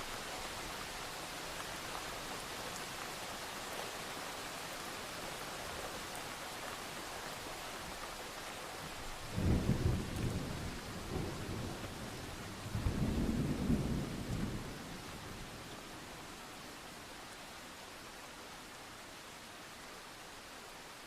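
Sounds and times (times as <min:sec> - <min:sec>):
steady rain: 0:00.0 - 0:21.0
distant thunder rumbling: 0:09.4 - 0:14.9.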